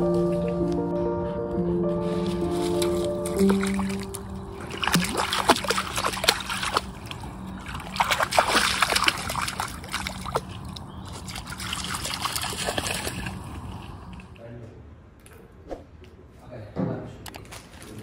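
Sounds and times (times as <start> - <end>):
dog splashing through puddle: 2.2 - 14.4.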